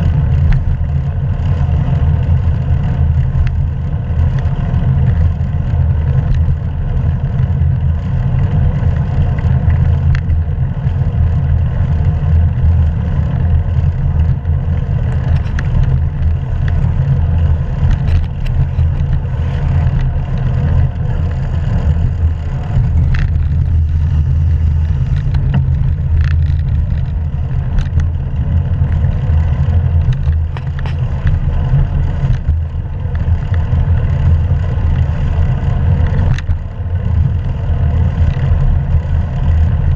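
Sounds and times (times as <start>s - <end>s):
wind and road rumble: 0.0s - 39.9s.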